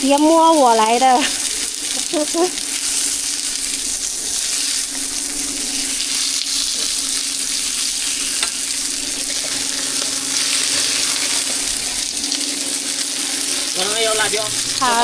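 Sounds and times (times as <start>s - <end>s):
food sizzling in frying: 0.0s - 15.0s
low hum: 8.8s - 15.0s.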